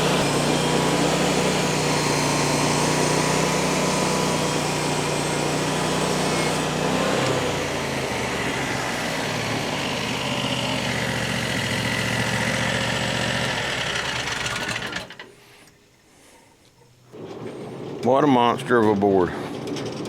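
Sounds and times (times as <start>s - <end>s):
saw blade cutting log: 0.0s - 15.1s
small gasoline engine under load: 0.0s - 15.4s, 17.1s - 20.0s.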